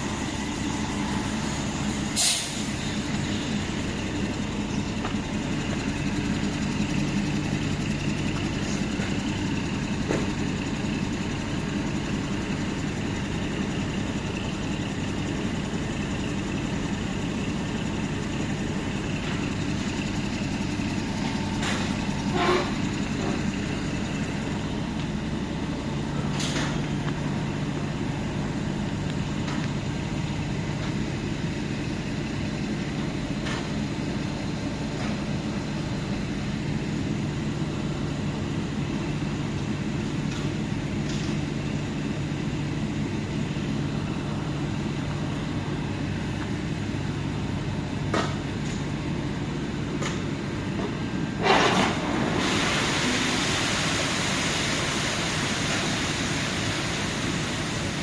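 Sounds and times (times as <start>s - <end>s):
loud steady hiss: 0.0s - 7.7s, 52.2s - 58.0s.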